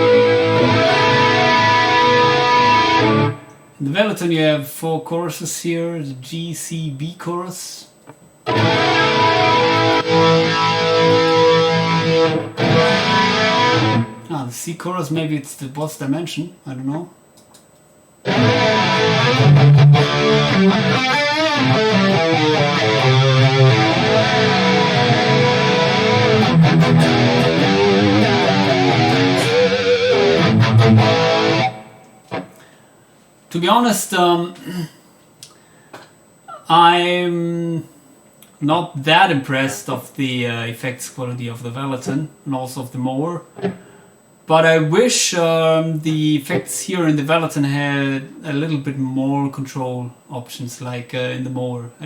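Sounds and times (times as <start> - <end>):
electric guitar chord strummed: 0.0 - 3.6, 8.5 - 14.3, 18.2 - 32.7.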